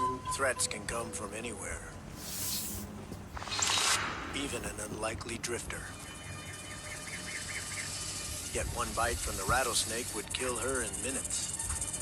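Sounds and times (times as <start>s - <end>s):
rattlesnake rattling: 2.2s - 4.8s.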